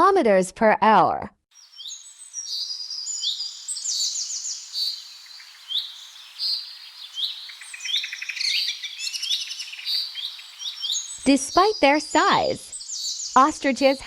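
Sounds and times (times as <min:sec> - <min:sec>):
songbirds chirping and singing: 0:01.6 - 0:14.0.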